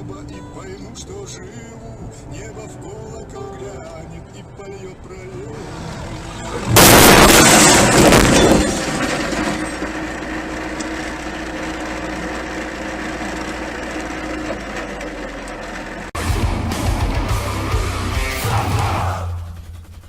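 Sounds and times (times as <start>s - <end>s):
vehicle drone: 4.2s - 20.0s
car crash impact: 6.6s - 10.2s.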